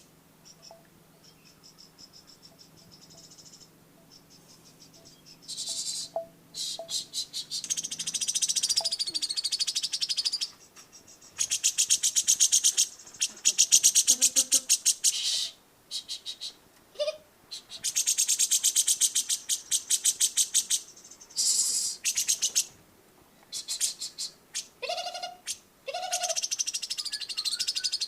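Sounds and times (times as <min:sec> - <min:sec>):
songbird trilling: 0:00.4 - 0:16.6, 0:17.5 - 0:22.8, 0:23.5 - 0:28.0.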